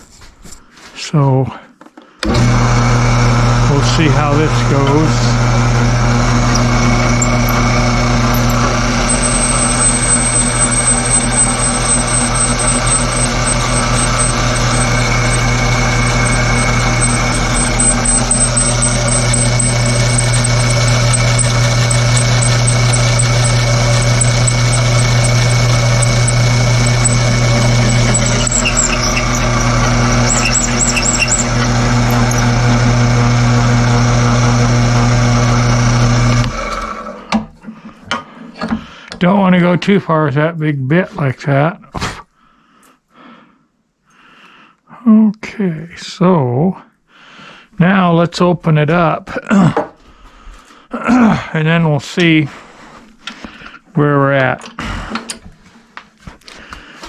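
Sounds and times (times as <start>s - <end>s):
electric drill motor hum: 2.2s - 37.0s
high squeal of cutting: 6.4s - 32.8s.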